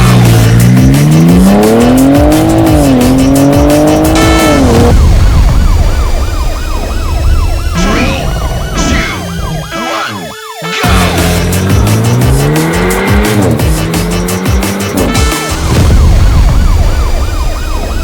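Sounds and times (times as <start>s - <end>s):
road noise: 0.0s - 6.0s, 10.7s - 17.4s
car engine accelerating: 0.0s - 6.4s, 10.8s - 17.4s.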